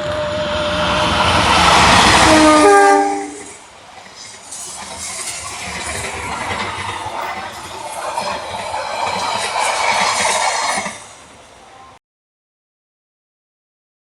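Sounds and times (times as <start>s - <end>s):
train horn: 0.0s - 3.6s
carriages rumbling over rails: 0.0s - 12.0s
train passing at speed: 0.0s - 12.0s.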